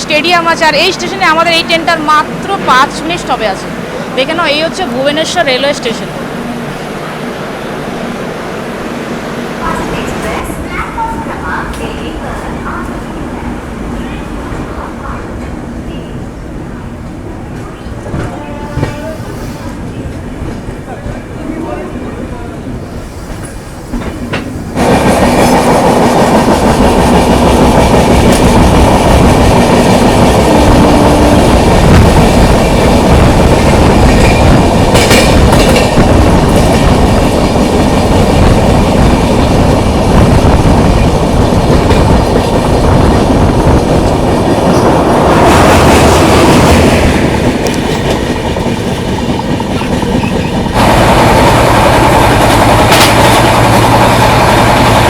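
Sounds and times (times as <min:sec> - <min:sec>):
train wheels clattering on rails: 0:09.3 - 0:21.3, 0:23.0 - 0:55.0.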